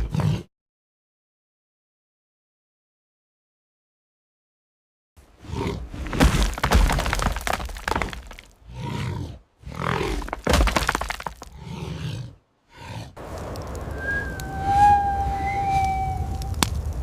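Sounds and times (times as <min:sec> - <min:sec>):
loud cracking and breaking: 0:06.0 - 0:08.6, 0:10.1 - 0:11.6, 0:16.4 - 0:17.0.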